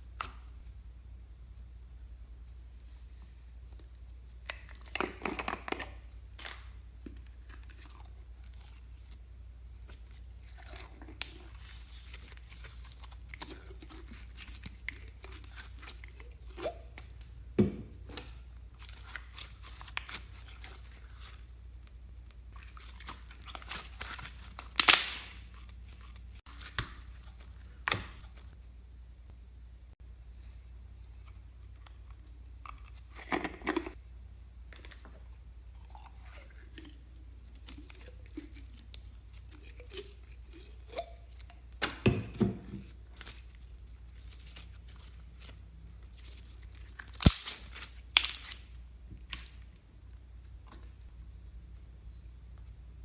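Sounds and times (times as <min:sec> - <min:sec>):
slime squishing and crackling: 0:09.8 - 0:17.3, 0:18.7 - 0:21.5, 0:22.3 - 0:28.5, 0:43.0 - 0:49.6.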